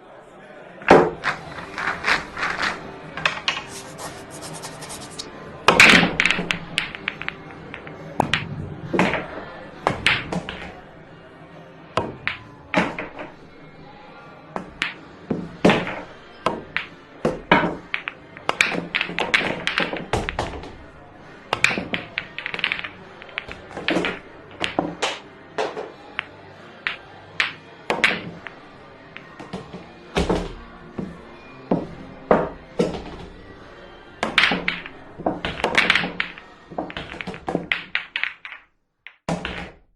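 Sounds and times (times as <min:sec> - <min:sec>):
billiard balls clacking: 0:01.0 - 0:08.4, 0:15.7 - 0:20.8, 0:21.6 - 0:33.3, 0:34.2 - 0:39.8.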